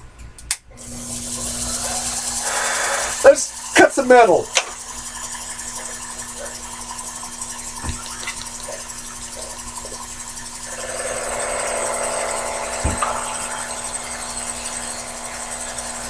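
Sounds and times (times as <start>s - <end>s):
lathe motor running: 0.8s - 16.0s
lathe tool cutting metal: 0.8s - 16.0s
soft knocks: 12.8s - 13.3s.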